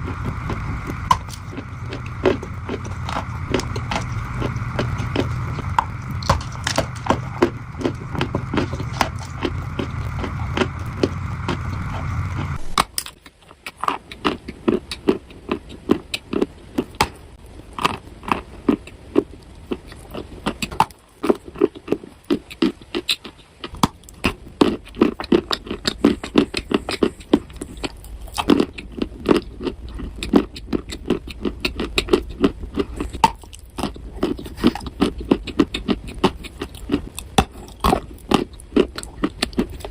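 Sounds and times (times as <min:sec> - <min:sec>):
dry clay crunching: 0:00.0 - 0:17.2
steady hum: 0:00.0 - 0:22.1.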